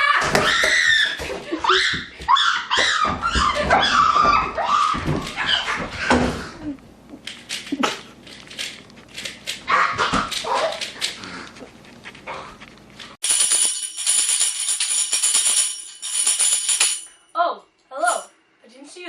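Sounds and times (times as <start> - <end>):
dog barking and yelping: 1.6 - 6.1, 9.6 - 11.2
music with jingling tambourine: 13.2 - 17.1.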